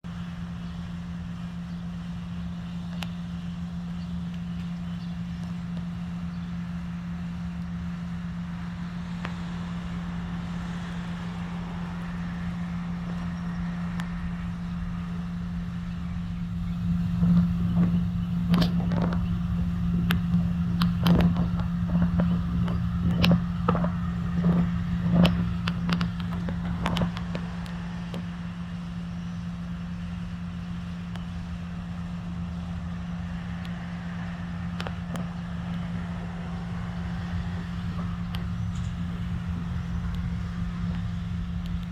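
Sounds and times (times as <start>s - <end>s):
bees buzzing: 13.6s - 27.6s
sharp clicks and knocks: 15.7s - 28.2s.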